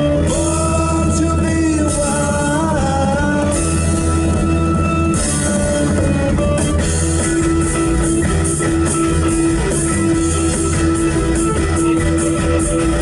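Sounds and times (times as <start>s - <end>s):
instrumental rock music: 0.0s - 13.0s.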